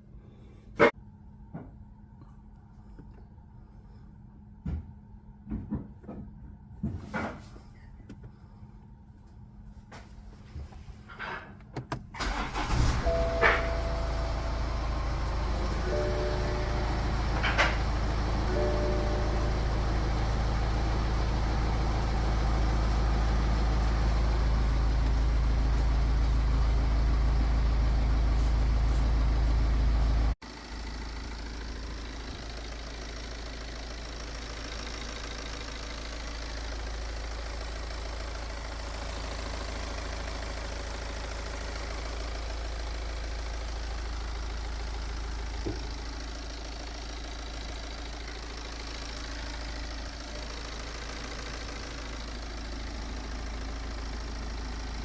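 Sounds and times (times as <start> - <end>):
diesel engine idling: 12.1 - 55.0.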